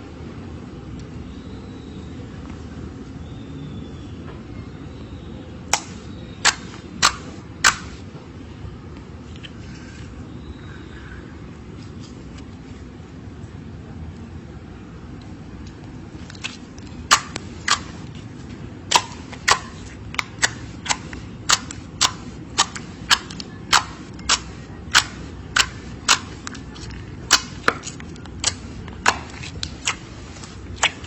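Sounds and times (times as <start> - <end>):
slime popping and clicking: 5.7 - 8.0, 16.4 - 17.9, 18.9 - 31.0.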